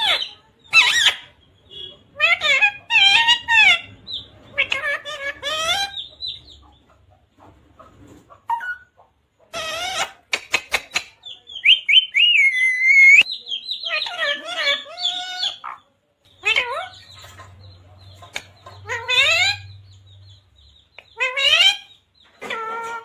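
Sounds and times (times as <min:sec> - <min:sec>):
parrot speech-like chatter: 0:00.0 - 0:06.0, 0:09.5 - 0:17.6, 0:18.7 - 0:19.8, 0:21.0 - 0:23.0.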